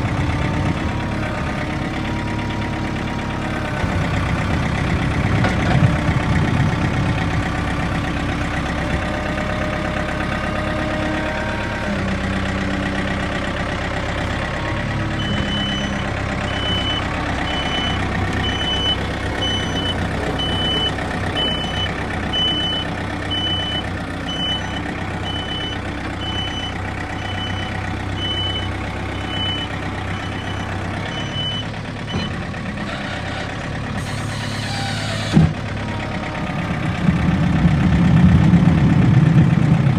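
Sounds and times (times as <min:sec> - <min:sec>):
backhoe diesel engine: 0:00.0 - 0:39.9
backup alarm beeping: 0:15.2 - 0:32.3.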